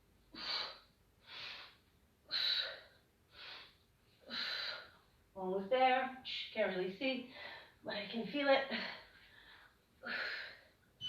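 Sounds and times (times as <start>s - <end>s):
woman breathing hard: 0.3s - 5.1s, 8.7s - 10.9s.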